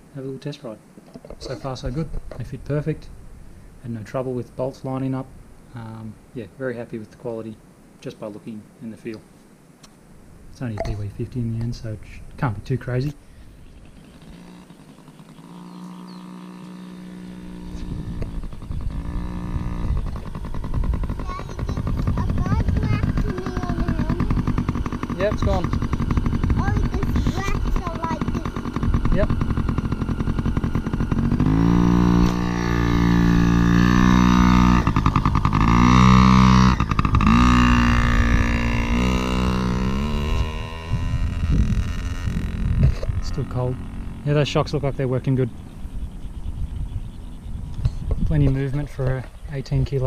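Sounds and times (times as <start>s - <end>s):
small two-stroke engine running: 13.9s - 44.7s.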